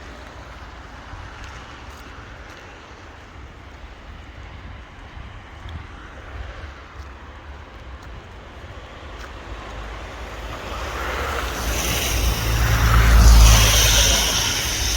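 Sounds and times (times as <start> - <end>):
tyres hissing on wet road: 0.0 - 14.9
wind rumbling on microphone: 3.9 - 14.9.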